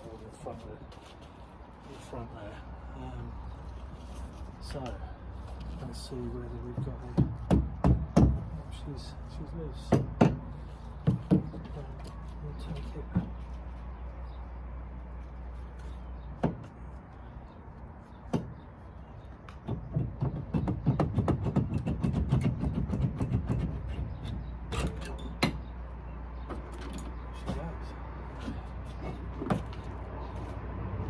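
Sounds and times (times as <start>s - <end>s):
sharp metal knocks: 9.8s - 11.7s, 18.3s - 18.6s, 19.6s - 25.7s
metal clunks and scrapes: 23.2s - 25.7s.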